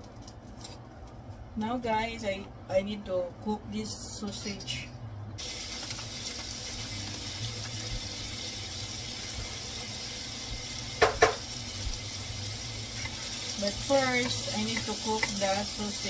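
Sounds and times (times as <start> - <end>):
sausage sizzling in a frying pan: 5.4 - 16.0.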